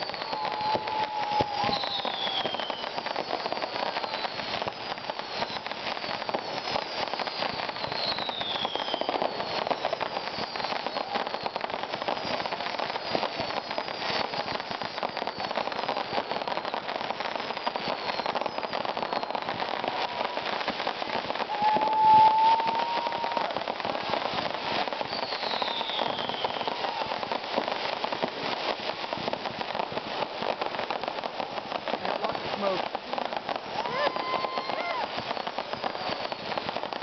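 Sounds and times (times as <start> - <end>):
faint falling firework whistles: 0.0 - 37.0
fireworks crackling: 0.0 - 37.0
loud steady firework whistle: 0.0 - 37.0.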